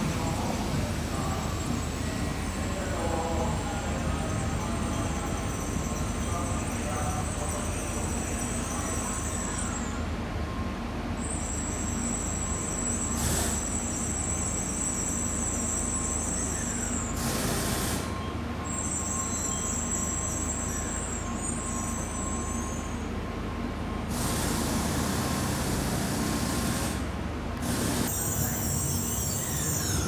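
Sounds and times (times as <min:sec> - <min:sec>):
train low rumble: 0:00.0 - 0:13.0
loud hiss: 0:24.1 - 0:30.0
high squealing tones: 0:27.8 - 0:30.0.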